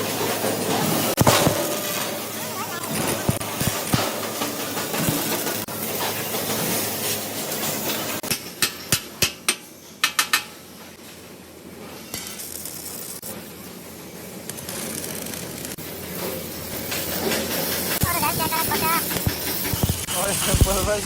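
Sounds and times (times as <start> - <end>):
workshop background noise: 0.0 - 21.0
sharp metallic knocks: 8.2 - 10.6.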